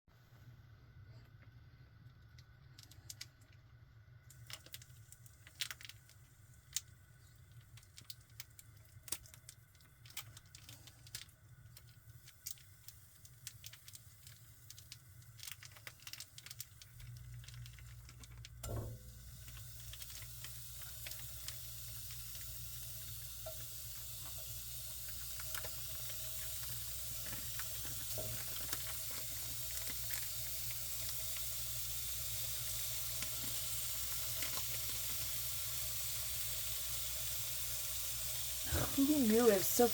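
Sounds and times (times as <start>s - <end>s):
pan sizzling: 11.7s - 39.9s
low hum: 18.5s - 20.2s.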